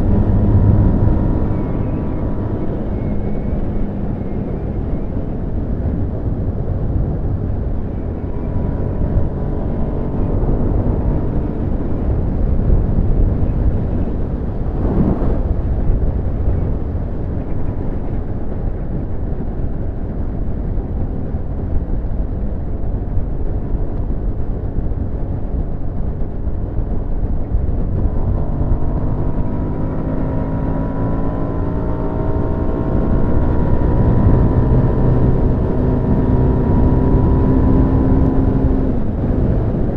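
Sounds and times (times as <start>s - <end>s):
wind rumble: 0.0s - 39.9s
brief whoosh: 14.2s - 16.4s.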